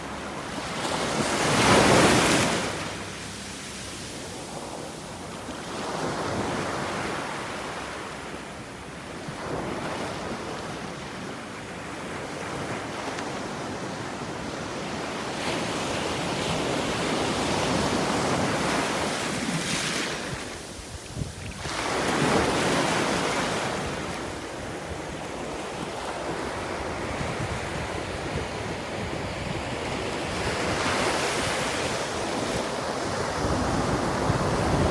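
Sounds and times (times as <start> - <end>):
sea waves breaking on shore: 0.0 - 8.5, 15.0 - 28.1.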